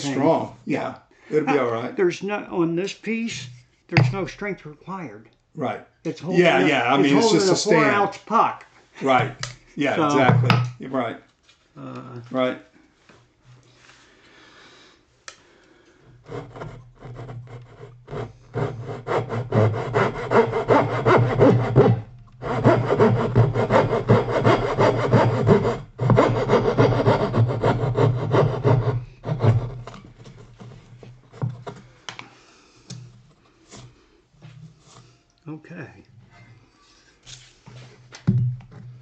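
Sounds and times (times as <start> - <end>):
hand saw cutting wood: 3.3 - 4.4, 6.4 - 8.0, 16.2 - 31.8.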